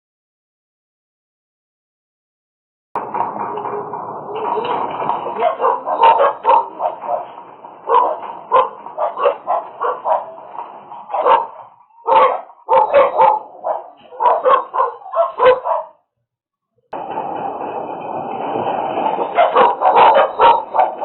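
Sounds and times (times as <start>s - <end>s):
dog barking: 4.4s - 16.0s, 19.2s - 21.0s.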